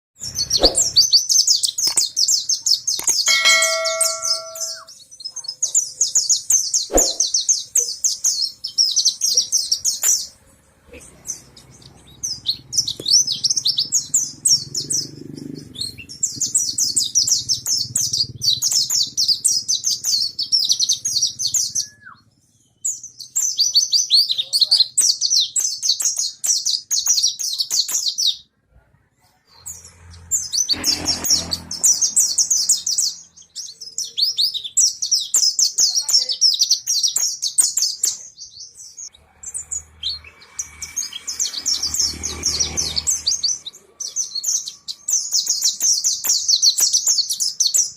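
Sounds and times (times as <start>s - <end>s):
bird twittering warble: 0.2s - 4.9s, 5.6s - 10.3s.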